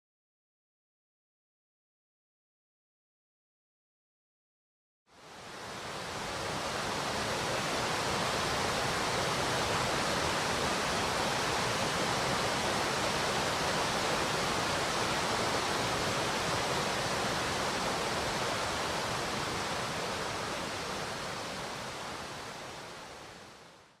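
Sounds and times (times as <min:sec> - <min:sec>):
mountain stream rushing: 0:05.1 - 0:24.0.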